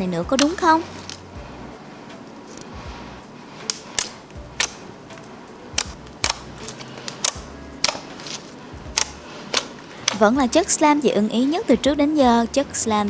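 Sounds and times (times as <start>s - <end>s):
slime pressed and stretched: 5.8s - 10.3s.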